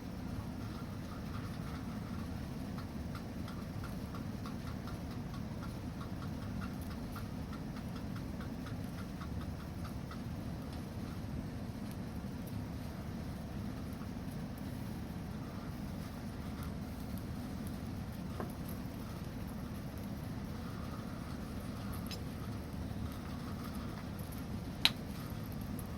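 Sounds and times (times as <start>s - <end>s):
campfire rumble: 0.0s - 25.9s
fire crackles: 0.0s - 25.9s
soft ticks: 0.7s - 10.8s.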